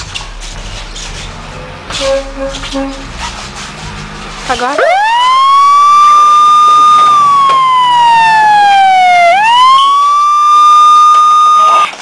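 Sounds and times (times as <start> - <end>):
siren wailing: 4.8 - 12.0.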